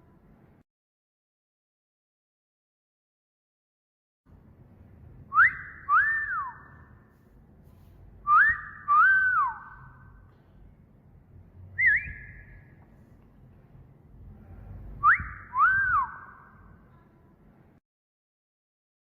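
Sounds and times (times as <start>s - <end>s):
short wavering whistle: 5.3s - 6.9s, 8.2s - 10.1s, 11.8s - 12.7s, 15.0s - 16.7s
wolf whistle: 5.3s - 6.9s, 8.2s - 10.0s, 11.8s - 12.7s, 15.0s - 16.6s.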